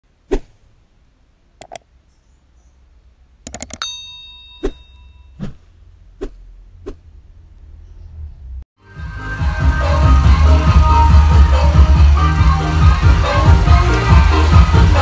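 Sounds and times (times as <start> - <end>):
sharp clicks and taps: 1.6 - 1.9, 3.4 - 3.8
bell-like ring: 3.8 - 5.4.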